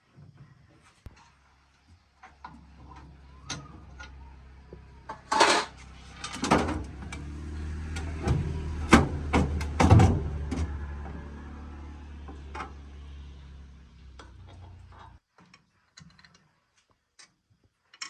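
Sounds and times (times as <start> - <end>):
metal knocks and clanks: 8.0 - 10.8.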